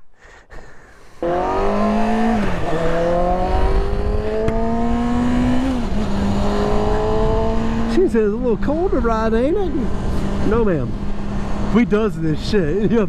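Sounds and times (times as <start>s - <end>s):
motorcycle engine accelerating: 1.2s - 13.0s
wind rumbling on microphone: 2.0s - 12.0s.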